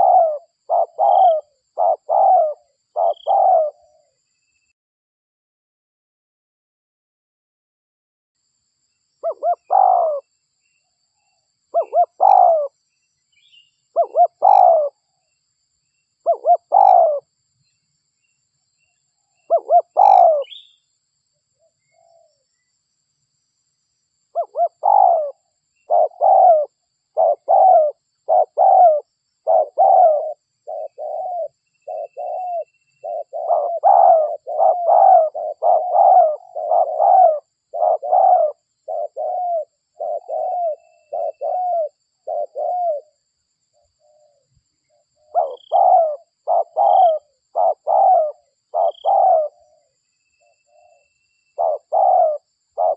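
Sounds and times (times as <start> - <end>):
dove cooing: 0.0 - 4.2, 9.2 - 10.3, 11.7 - 12.8, 13.9 - 15.0, 16.2 - 17.3, 19.5 - 20.7, 24.3 - 43.2, 44.0 - 49.9, 50.7 - 52.9.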